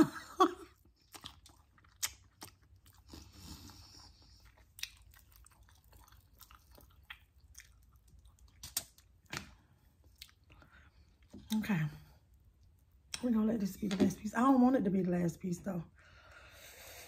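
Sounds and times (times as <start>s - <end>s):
chewing crispy food: 0.6s - 13.3s.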